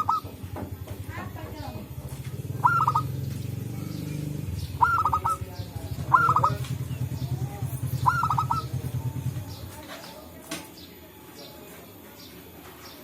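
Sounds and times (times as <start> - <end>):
doves calling clipped notes: 0.0 - 11.0
low pulsing purr: 1.8 - 9.6.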